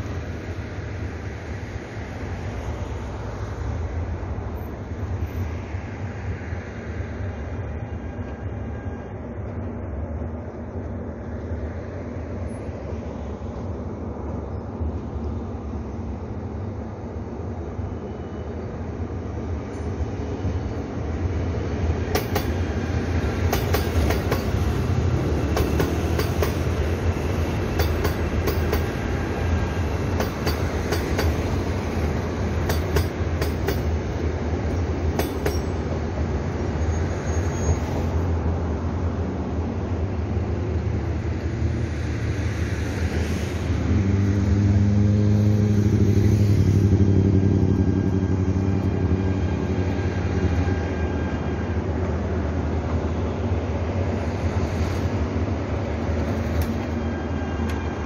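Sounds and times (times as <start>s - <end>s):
locomotive mechanical hum: 0.0s - 41.6s, 46.8s - 58.0s
train wheels rumbling and clicking: 21.4s - 39.0s, 53.8s - 58.0s.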